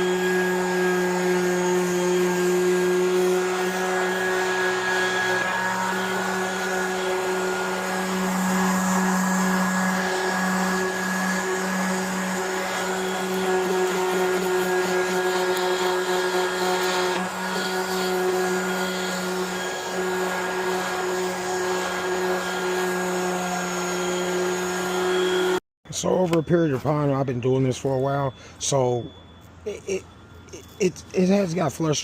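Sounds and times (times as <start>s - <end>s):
orbital sander running: 0.0s - 25.6s.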